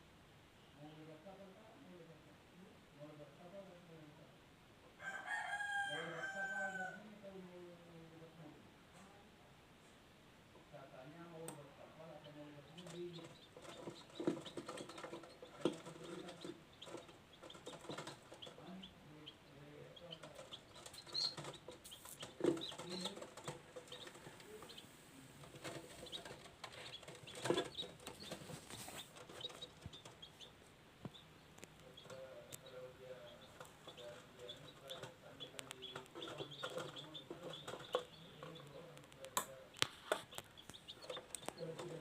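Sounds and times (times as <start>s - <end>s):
chickens cheeping and clucking: 12.2s - 42.0s
rustling: 20.3s - 30.8s.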